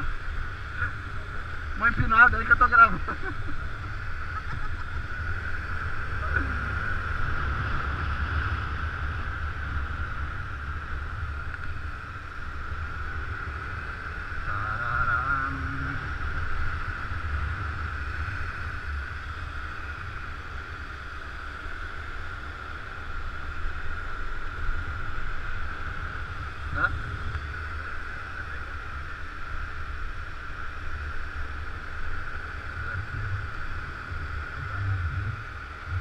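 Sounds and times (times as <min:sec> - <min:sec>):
wind buffeting microphone: 0:22.9 - 0:36.0.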